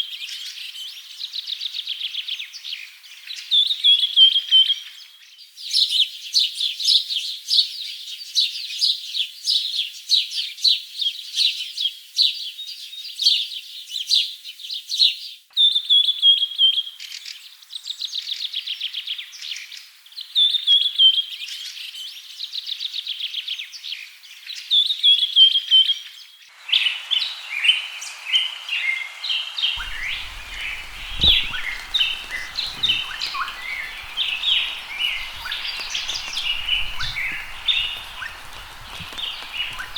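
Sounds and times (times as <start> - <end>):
steady hiss: 26.5 - 39.9
birds chirping and trilling: 29.7 - 39.9.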